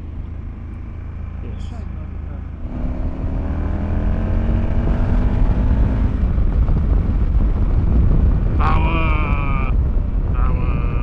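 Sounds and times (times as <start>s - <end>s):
motorcycle engine accelerating: 0.0s - 8.5s
wind rumble on microphone: 2.6s - 11.0s.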